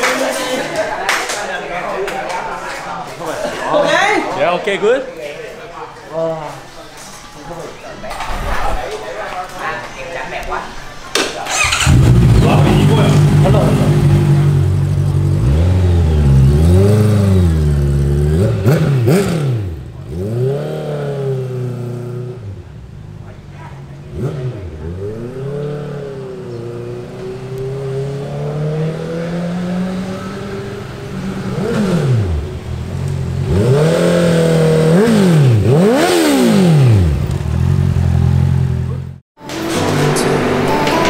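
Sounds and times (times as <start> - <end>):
motorcycle engine revving: 11.5 - 40.9.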